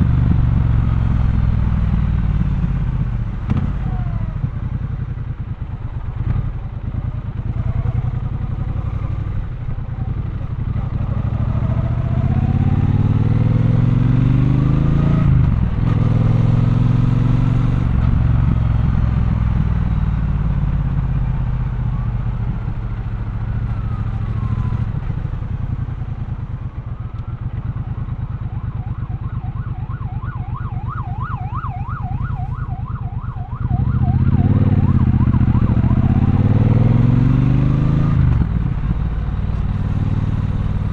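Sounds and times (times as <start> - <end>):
motorcycle engine under way: 0.0 - 29.4, 33.2 - 40.9
emergency siren wailing: 7.4 - 18.6, 19.8 - 39.2.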